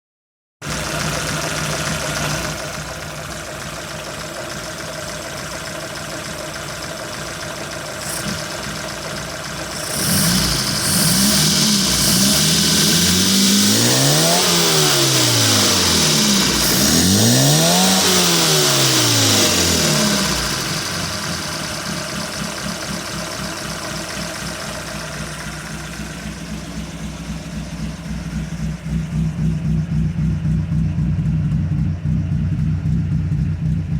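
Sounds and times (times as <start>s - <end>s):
engine idling and revving: 0.6s - 33.9s
loud engine hiss: 7.9s - 29.6s.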